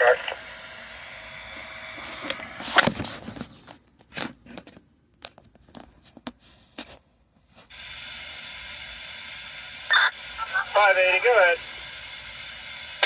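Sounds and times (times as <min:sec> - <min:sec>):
radio static hiss: 0:00.0 - 0:03.0, 0:07.7 - 0:13.0
crinkling and crackling: 0:02.0 - 0:07.7.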